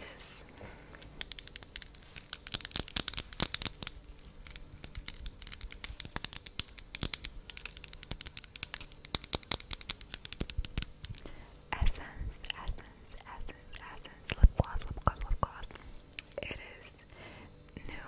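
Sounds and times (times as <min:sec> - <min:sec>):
wet lip-smacking and mouth clicks: 0:01.0 - 0:11.4, 0:12.4 - 0:16.4.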